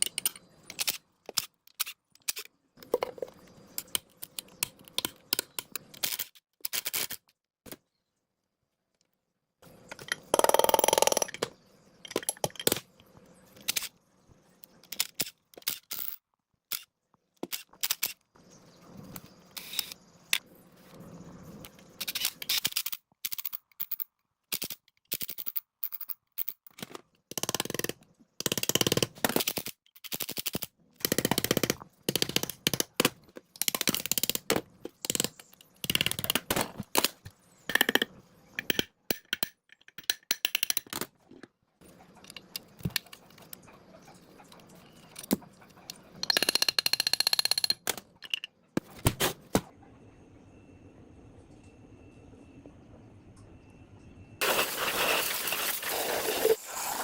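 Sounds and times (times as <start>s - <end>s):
metal tools clicking and knocking: 0.0s - 7.3s, 9.9s - 13.0s, 22.0s - 41.5s, 44.4s - 48.9s.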